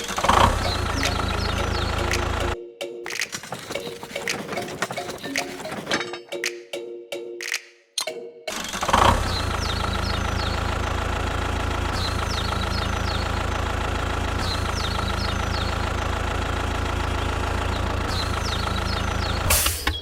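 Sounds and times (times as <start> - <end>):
engine idling: 0.0 - 2.6, 8.8 - 19.9.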